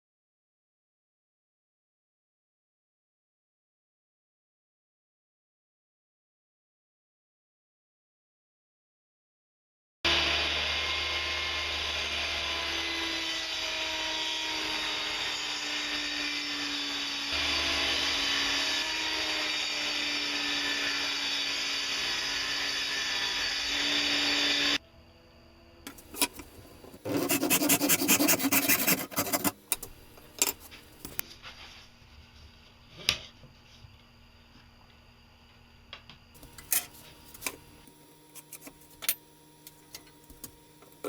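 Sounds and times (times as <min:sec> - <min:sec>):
power tool cutting wood: 0:10.1 - 0:24.8, 0:25.9 - 0:31.2
rapid scraping on wood: 0:25.9 - 0:29.6.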